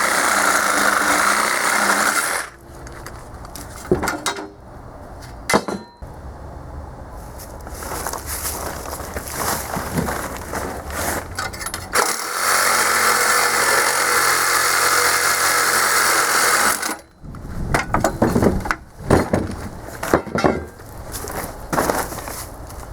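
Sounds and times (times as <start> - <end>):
power tool running: 0.0 - 2.6, 11.9 - 17.0
metal parts clanking: 2.8 - 4.6, 5.5 - 6.0, 11.0 - 12.1, 16.8 - 22.4.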